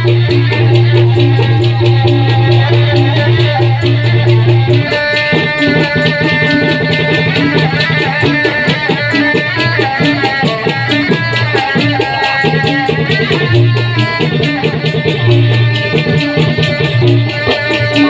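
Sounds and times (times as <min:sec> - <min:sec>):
hand drums playing fast rhythm: 0:00.0 - 0:18.0.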